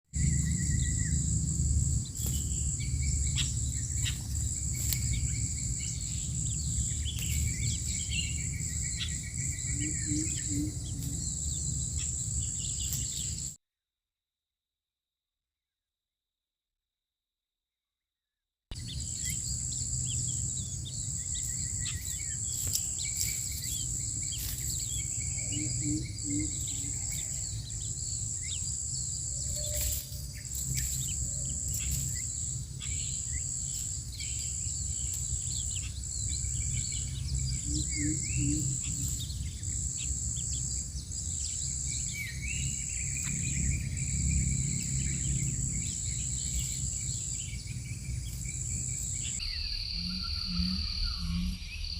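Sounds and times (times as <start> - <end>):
low background rumble: 0.2 - 13.5
high-pitched insect trill: 0.2 - 13.6, 18.8 - 51.9.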